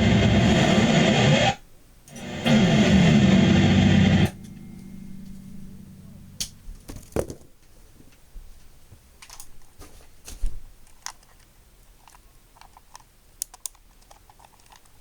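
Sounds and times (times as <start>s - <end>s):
guitar handling clicks and taps: 2.1s - 7.2s.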